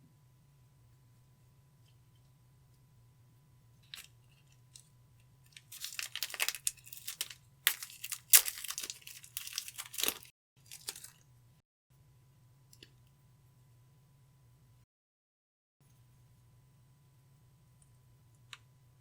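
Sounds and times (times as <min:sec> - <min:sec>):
slime crackling and popping: 0:05.7 - 0:11.0.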